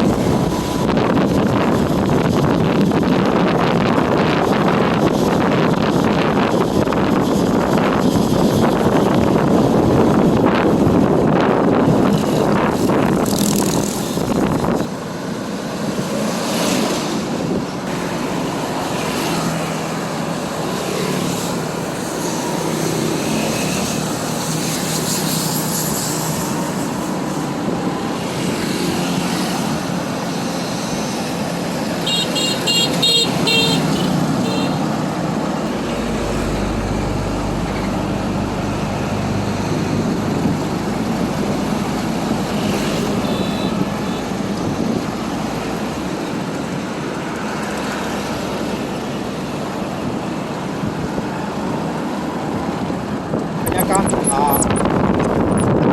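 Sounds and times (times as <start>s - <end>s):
motorbike road and wind noise: 0.0s - 55.9s
deep engine rumble: 35.0s - 42.7s.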